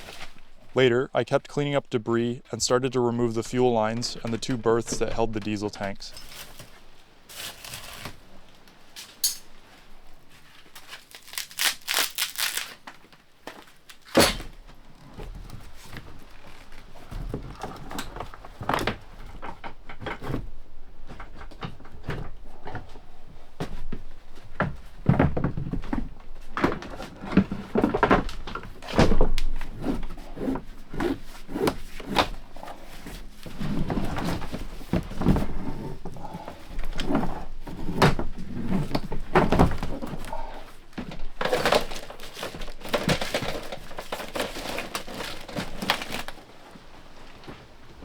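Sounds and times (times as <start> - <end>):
scraping and rustling: 0.0 - 0.9, 3.2 - 48.0
knocks and clunks in wooden hull: 14.2 - 44.6.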